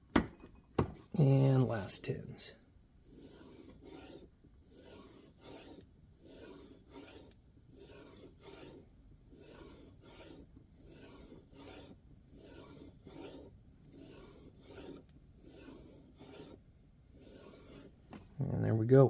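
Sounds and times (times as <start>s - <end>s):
knife rubbing on leather strop: 3.1s - 16.6s.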